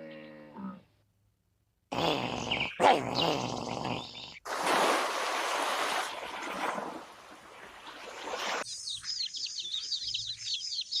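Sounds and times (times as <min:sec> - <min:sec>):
bird chirping: 0:08.6 - 0:11.0.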